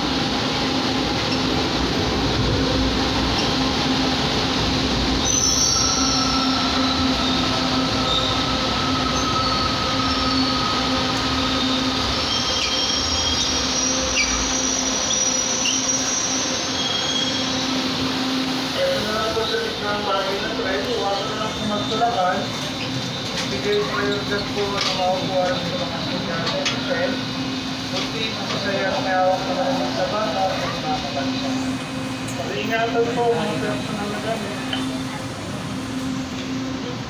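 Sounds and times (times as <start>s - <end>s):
train hum: 0.0s - 37.0s
train rolling rumble: 0.0s - 37.0s
wheel and brake squeals: 5.2s - 7.4s, 8.0s - 17.7s.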